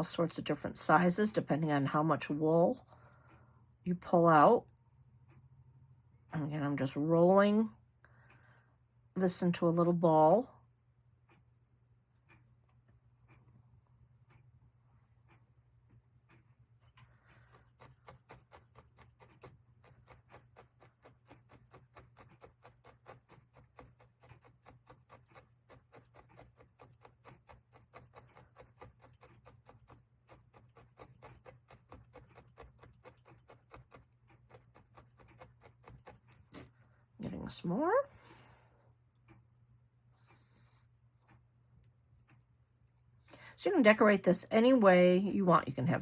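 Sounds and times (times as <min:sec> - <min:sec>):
felting needle stabbing foam: 0:17.4 - 0:36.7.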